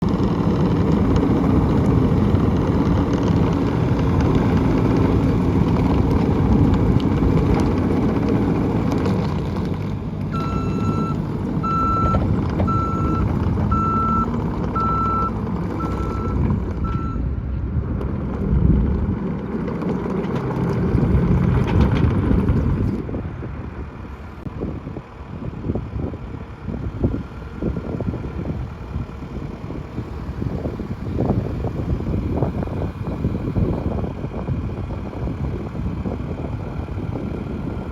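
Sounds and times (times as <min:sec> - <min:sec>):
gusty wind noise: 0:00.0 - 0:37.9
skid steer engine under load: 0:00.0 - 0:37.9
backup alarm beeps: 0:10.4 - 0:17.2.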